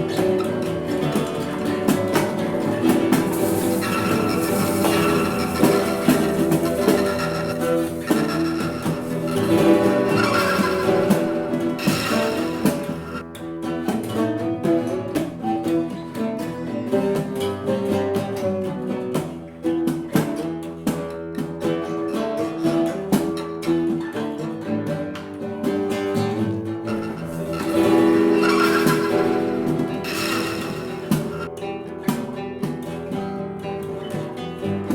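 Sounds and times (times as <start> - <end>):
rock band playing: 0.0 - 14.4, 26.9 - 33.0.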